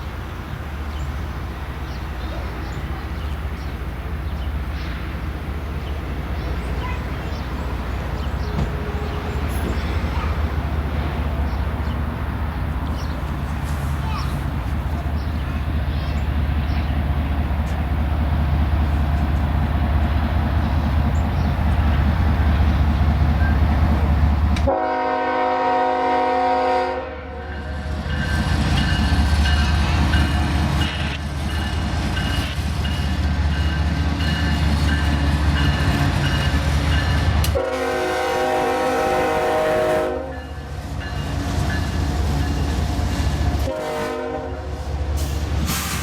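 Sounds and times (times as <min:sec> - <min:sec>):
locomotive engine rumble: 0:00.0 - 0:46.0
multi-tone train air horn: 0:24.7 - 0:27.4, 0:37.5 - 0:40.6, 0:43.5 - 0:46.0.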